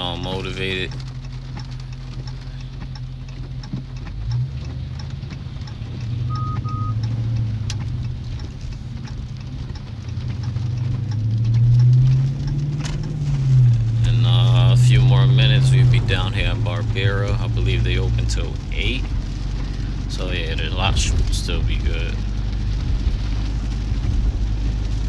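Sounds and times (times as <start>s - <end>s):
car engine humming: 0.0s - 25.0s
double electronic beep: 6.3s - 7.0s.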